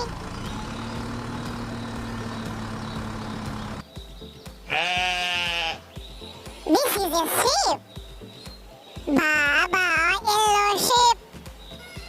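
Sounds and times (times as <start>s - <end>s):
sheep bleating: 4.7s - 5.8s, 11.8s - 12.0s.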